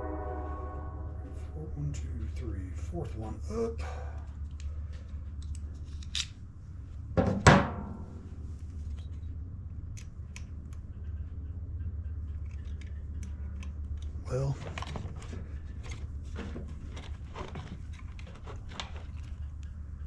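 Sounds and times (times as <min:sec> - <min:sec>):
steady low hum: 0:00.0 - 0:20.0
loud metallic clank: 0:07.2 - 0:08.3.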